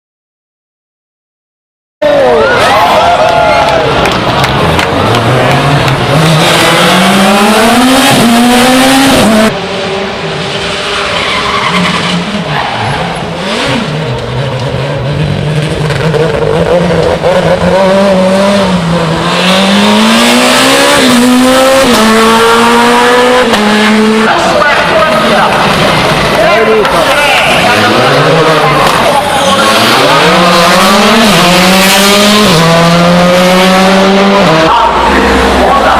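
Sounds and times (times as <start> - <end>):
rally car engines accelerating: 2.0 - 35.9
tyre squeal: 11.0 - 13.3.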